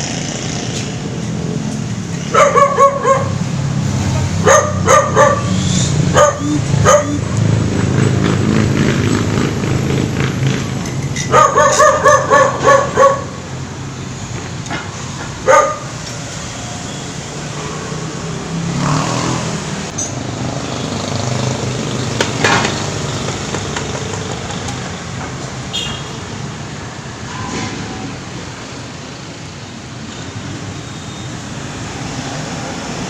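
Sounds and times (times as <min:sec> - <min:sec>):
rumble of passing vehicles: 0:00.0 - 0:33.0
dog barking: 0:02.3 - 0:03.4, 0:04.4 - 0:07.3, 0:11.3 - 0:13.4, 0:15.4 - 0:16.0.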